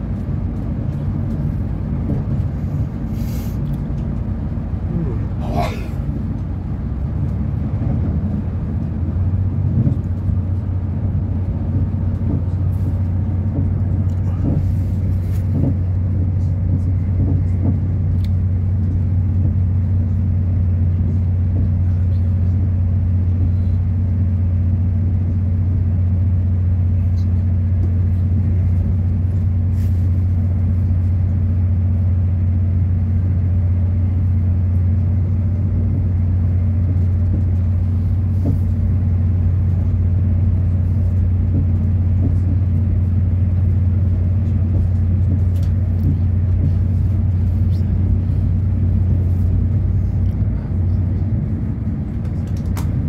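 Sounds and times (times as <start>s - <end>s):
train engine drone: 0.0s - 53.0s
wheels rumbling on track: 0.0s - 53.0s.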